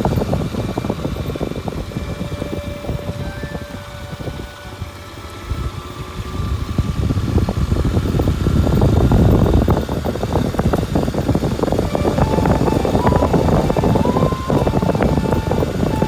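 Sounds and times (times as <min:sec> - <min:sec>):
motorcycle engine running: 0:00.0 - 0:16.0
rough wind noise: 0:05.5 - 0:16.0
road noise: 0:06.1 - 0:16.0.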